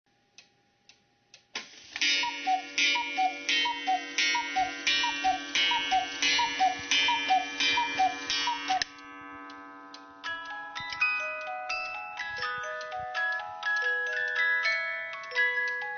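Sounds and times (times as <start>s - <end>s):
clock ticking: 0.4s - 15.9s
clock mechanism clack: 2.0s - 10.1s
cuckoo clock call: 2.0s - 15.9s
music box playing: 2.0s - 15.9s.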